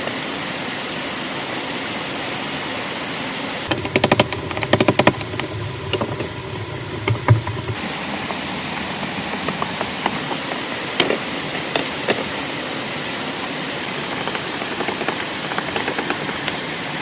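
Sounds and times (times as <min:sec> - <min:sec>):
heavy rain hissing: 0:00.0 - 0:17.0
sharp taps and drips: 0:03.7 - 0:17.0.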